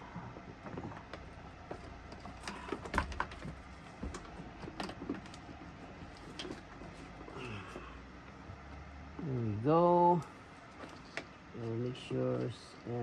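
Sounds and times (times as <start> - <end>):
engine parts clicking and knocking: 0.0 - 7.9.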